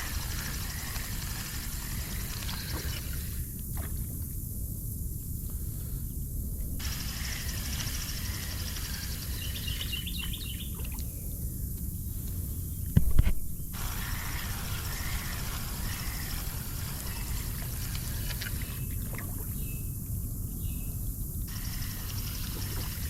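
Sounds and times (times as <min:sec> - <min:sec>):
insect buzzing: 0:00.0 - 0:03.9, 0:06.8 - 0:10.7, 0:12.0 - 0:18.9, 0:21.5 - 0:23.0
bird chirps: 0:07.1 - 0:11.1.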